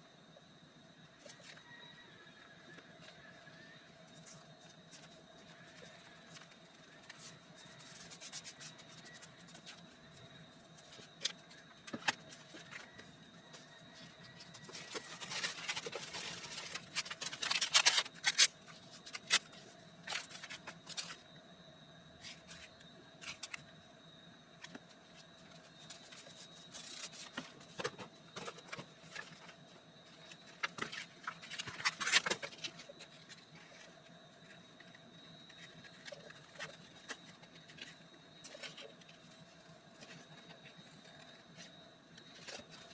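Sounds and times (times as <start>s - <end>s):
paper rustling and scraping: 4.3s - 9.9s, 14.3s - 21.2s.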